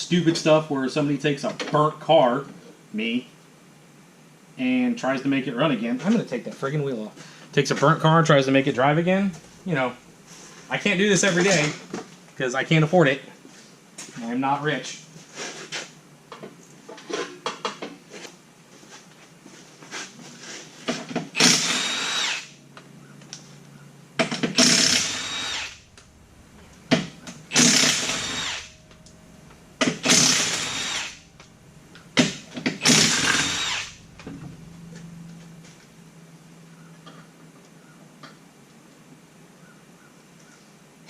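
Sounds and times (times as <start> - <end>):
impact wrench bursts: 21.3 - 22.6, 24.2 - 35.9.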